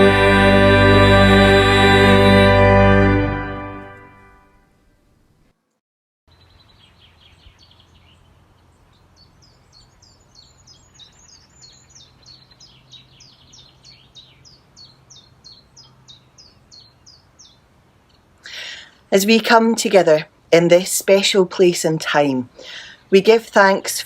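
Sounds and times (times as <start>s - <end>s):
songbird chirping: 6.3s - 24.0s.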